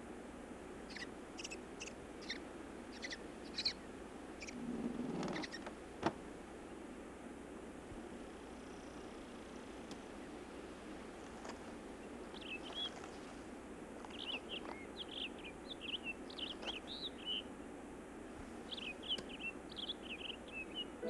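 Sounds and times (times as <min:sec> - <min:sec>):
steady background hiss: 0:00.0 - 0:21.0
bird chirping: 0:00.9 - 0:04.6, 0:05.2 - 0:05.6, 0:08.5 - 0:09.7, 0:12.0 - 0:13.4, 0:14.0 - 0:17.5, 0:18.7 - 0:21.0.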